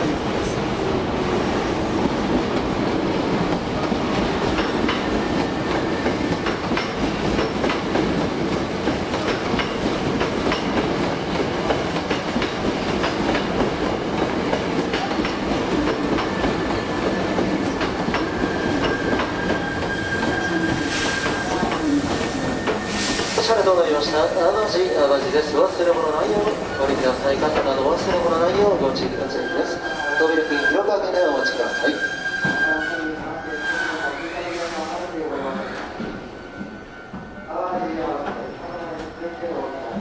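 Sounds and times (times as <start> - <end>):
train rumbling: 0.0 - 40.0
air hiss: 20.8 - 23.7.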